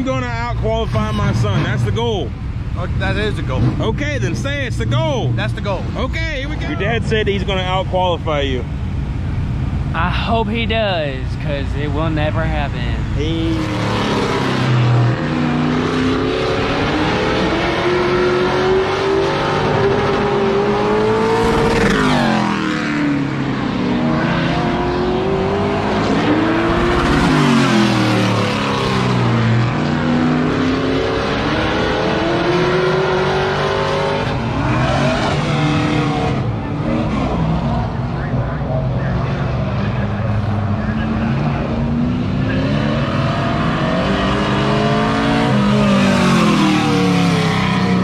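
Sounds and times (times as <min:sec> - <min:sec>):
race truck engine accelerating: 0:09.7 - 0:48.0.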